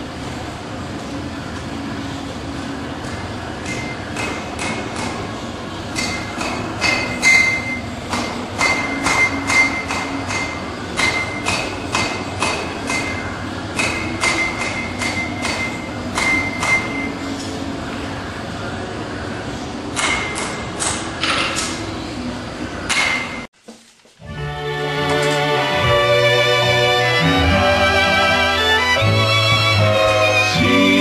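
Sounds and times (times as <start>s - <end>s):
hammer striking metal on anvil: 3.6s - 5.3s, 5.9s - 17.2s, 20.0s - 21.4s, 22.9s - 23.5s.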